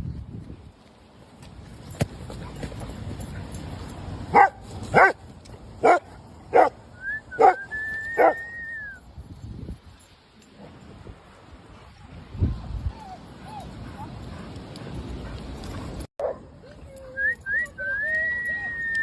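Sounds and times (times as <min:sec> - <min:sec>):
dog barking: 0:04.3 - 0:05.2, 0:05.8 - 0:06.8, 0:07.4 - 0:07.6.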